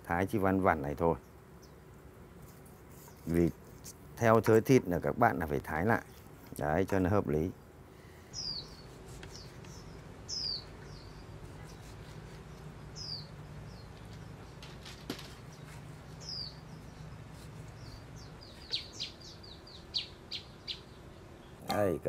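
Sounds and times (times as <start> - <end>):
bird chirping: 8.2 - 22.0.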